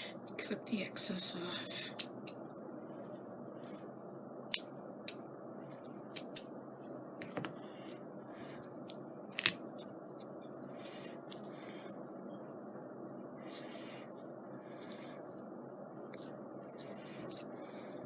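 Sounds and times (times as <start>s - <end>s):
steady low hiss: 0.0s - 18.0s
scissors snipping: 6.1s - 6.4s.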